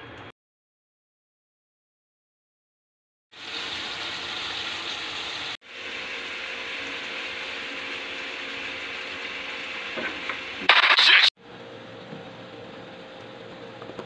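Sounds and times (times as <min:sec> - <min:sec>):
chicken livers sizzling in a pan: 0:03.3 - 0:10.6.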